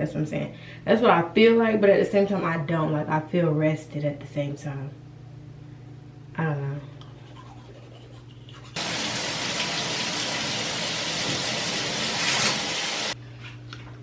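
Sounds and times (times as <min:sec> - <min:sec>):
water running from a tap: 0:08.8 - 0:13.2.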